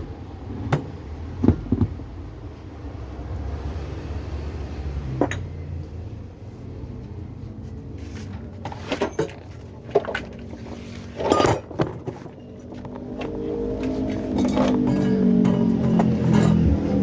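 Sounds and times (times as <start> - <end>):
metal parts clanking on bench: 8.7 - 10.1, 11.1 - 13.3, 14.0 - 16.8.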